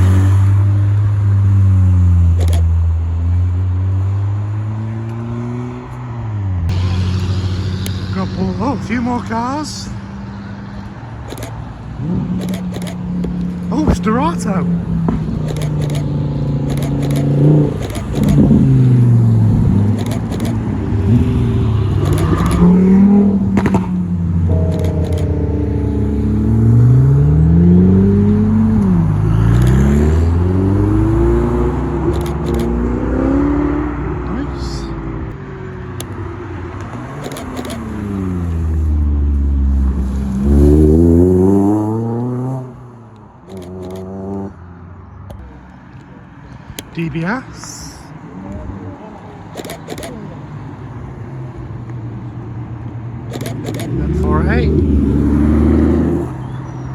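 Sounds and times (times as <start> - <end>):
supercar engines revving past: 0.0 - 56.9
steady engine note: 6.7 - 10.2, 21.0 - 31.4.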